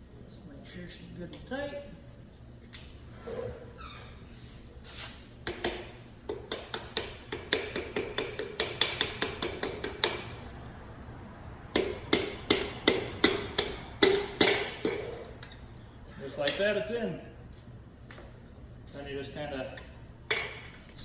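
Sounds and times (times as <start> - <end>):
hammer handle tapping piston: 5.5 - 10.3, 11.7 - 15.2.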